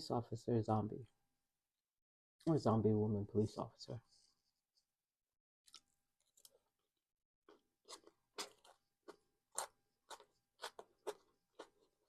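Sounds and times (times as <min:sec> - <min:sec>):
chewing crunchy salad: 0:07.5 - 0:12.0.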